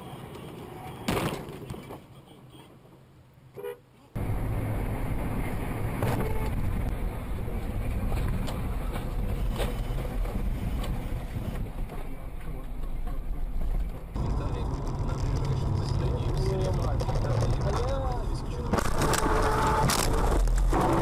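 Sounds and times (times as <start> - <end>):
car engine and road rumble: 0.0 - 21.0
car horn toot: 3.6 - 3.8, 6.0 - 6.6, 19.0 - 21.0.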